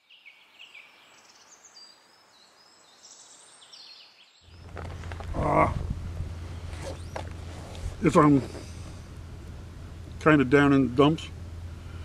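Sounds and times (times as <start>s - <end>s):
birds chirping: 0.0s - 12.0s
soft hiss: 0.6s - 12.0s
steady low hum: 4.5s - 12.0s.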